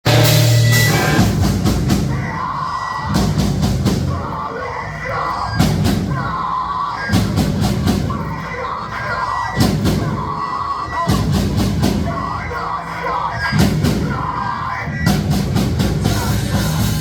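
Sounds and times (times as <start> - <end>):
live rock band: 0.0 - 4.4, 14.9 - 17.0
drum and cymbal hits: 0.0 - 4.5, 5.4 - 8.4, 9.5 - 12.6, 13.4 - 17.0.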